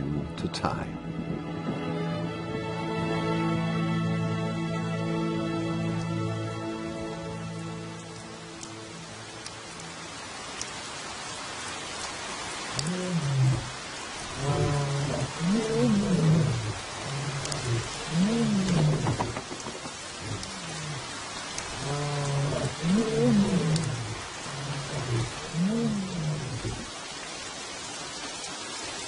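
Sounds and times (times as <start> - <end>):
steady rain falling: 0.0 - 29.0
large animal low calls: 12.8 - 26.9.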